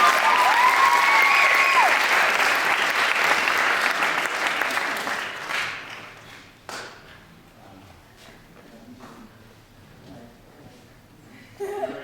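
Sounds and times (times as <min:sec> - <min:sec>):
high cheer: 0:00.0 - 0:06.0
audience applauding: 0:00.0 - 0:06.5.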